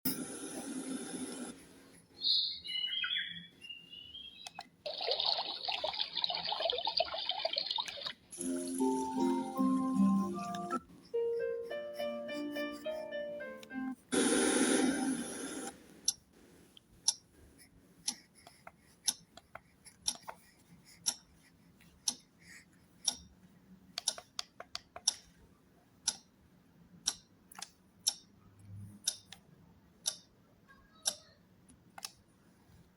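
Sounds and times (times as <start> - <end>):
loud burst of hiss: 14.1 - 15.7
clock ticking: 18.0 - 20.4, 22.0 - 22.3, 23.0 - 23.3, 26.0 - 26.3, 27.0 - 27.3, 28.0 - 28.4, 29.0 - 29.4, 30.0 - 30.4, 31.0 - 31.3.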